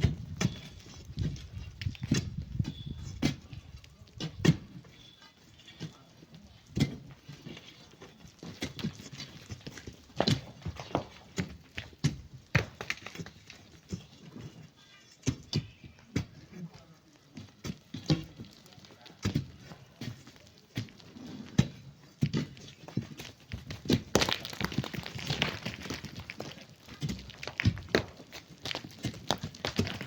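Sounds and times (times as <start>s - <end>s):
digging knocks and thuds: 0.0s - 3.5s, 4.2s - 4.8s, 6.7s - 7.1s, 8.4s - 14.2s
gritty scraping: 0.0s - 30.0s.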